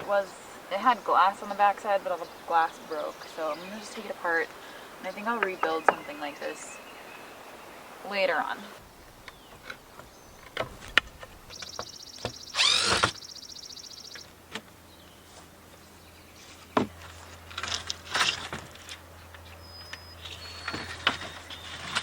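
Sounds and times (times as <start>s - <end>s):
loud creak: 12.5s - 13.2s.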